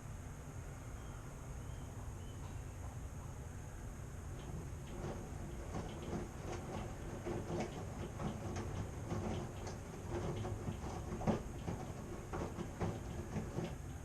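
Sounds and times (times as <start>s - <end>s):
washing machine humming: 0.0s - 14.0s
drum knocking and clunking: 4.3s - 14.0s.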